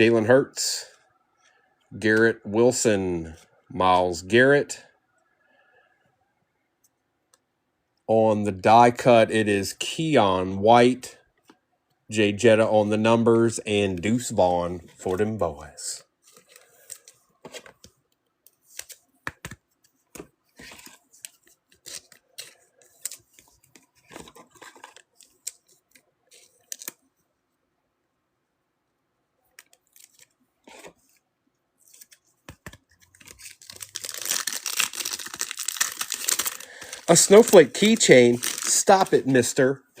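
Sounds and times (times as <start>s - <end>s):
cards clicking and slapping: 16.4s - 27.0s, 31.8s - 39.1s
foil wrapper crinkling and tearing: 33.1s - 39.3s.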